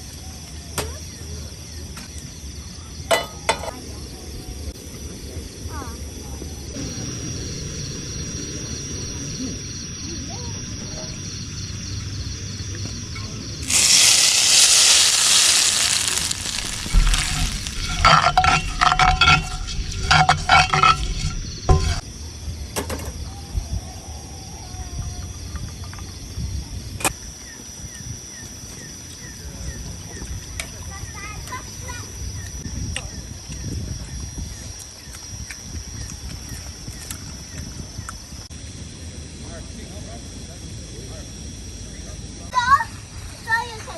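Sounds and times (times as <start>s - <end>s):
loud sizzling hiss: 13.5s - 22.0s
metal clinks of pots and utensils: 15.8s - 22.0s.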